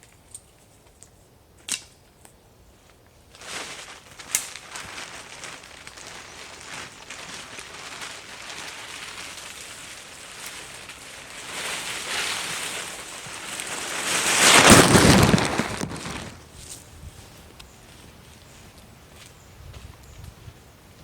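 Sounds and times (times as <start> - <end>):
wind blowing over microphone: 13.7 - 17.3.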